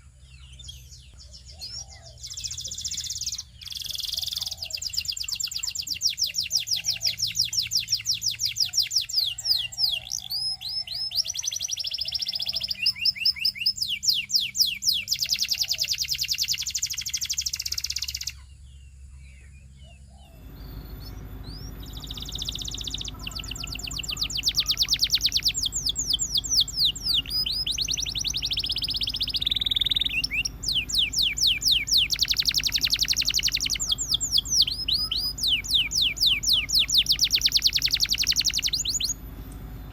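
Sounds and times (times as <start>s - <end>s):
canary singing trills: 0.0s - 39.9s
steady low hum: 18.3s - 39.9s.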